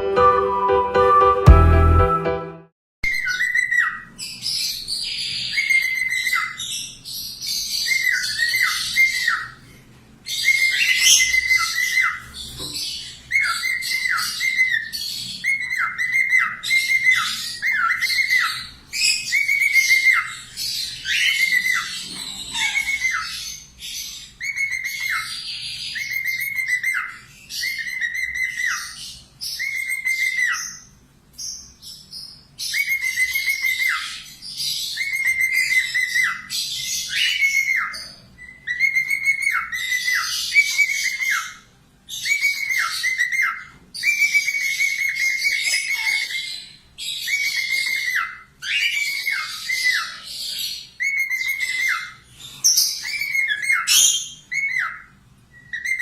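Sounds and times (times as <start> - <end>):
budgerigar whistling: 3.0 - 9.7, 10.3 - 56.0
budgerigar warbling chatter: 10.4 - 29.0, 42.2 - 56.0.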